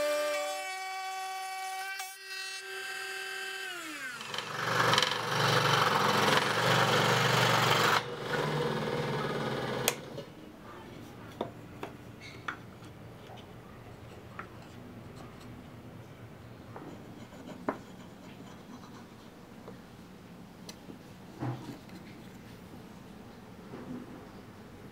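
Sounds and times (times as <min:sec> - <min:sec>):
power tool running: 0:00.0 - 0:10.2.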